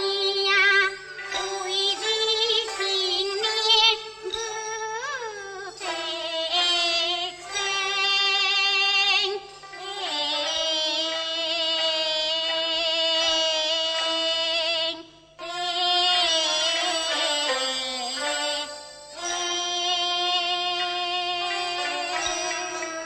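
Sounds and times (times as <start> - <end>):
woman singing opera: 0.0 - 23.0.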